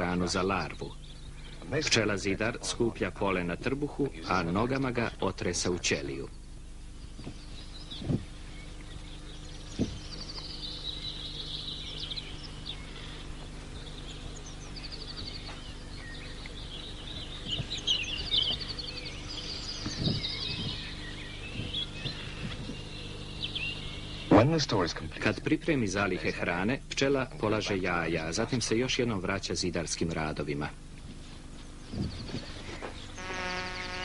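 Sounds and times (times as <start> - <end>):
small birds singing: 0.0 - 34.0
steady low hum: 0.0 - 34.0
short low thumps: 7.1 - 8.6, 9.4 - 11.2, 16.4 - 23.7, 31.8 - 33.1.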